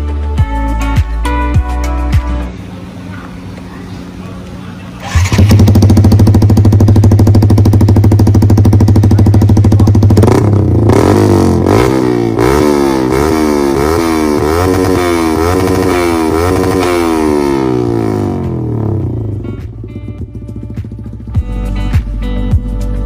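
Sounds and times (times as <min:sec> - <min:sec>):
motorcycle engine revving: 0:04.9 - 0:22.2.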